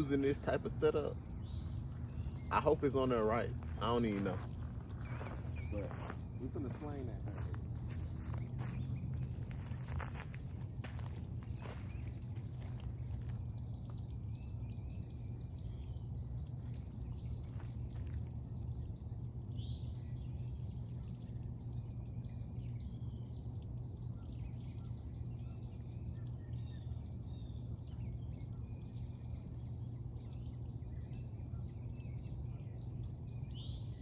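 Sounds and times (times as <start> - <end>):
bird chirps: 0.0 - 18.2
low outdoor rumble: 0.0 - 34.0.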